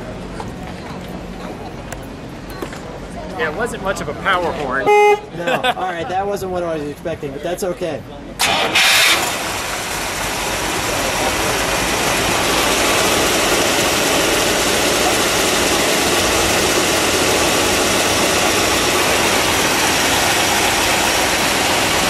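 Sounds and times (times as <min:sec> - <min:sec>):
car engine idling: 0:08.3 - 0:22.0.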